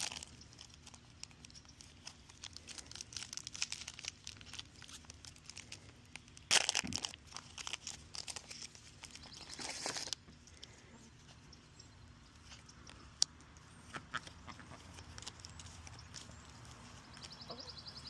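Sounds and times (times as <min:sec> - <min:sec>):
card packs tearing open: 0:00.0 - 0:10.2
foil wrappers crinkling: 0:00.0 - 0:10.8, 0:14.2 - 0:17.4.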